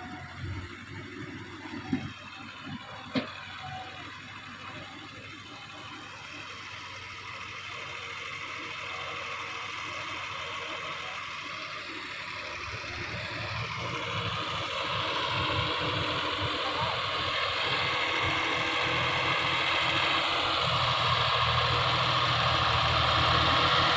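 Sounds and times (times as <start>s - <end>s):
tractor engine running: 0.0s - 23.9s
deep engine rumble: 9.3s - 23.9s.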